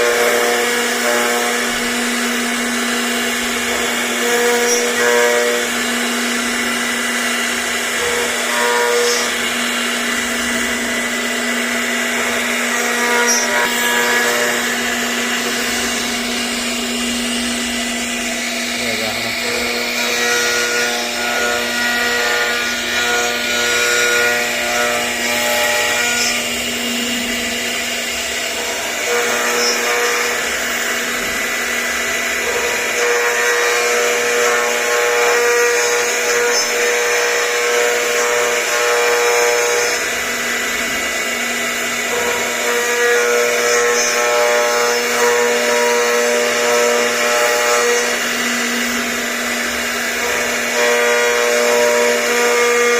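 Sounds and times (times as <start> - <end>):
high machine whine: 0.0 - 52.9
router spindle hum: 0.0 - 52.9.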